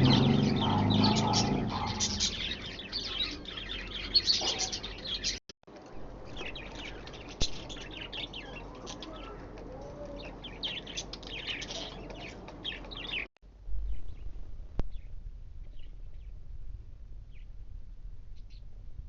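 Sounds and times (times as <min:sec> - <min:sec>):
pet birds chirping: 0:00.0 - 0:05.4, 0:06.2 - 0:13.3
low rumble: 0:13.5 - 0:19.0.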